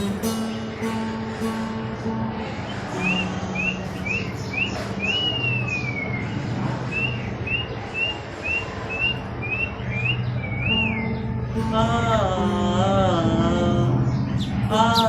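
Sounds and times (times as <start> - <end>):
high rising chirping whistles: 3.0 - 11.2.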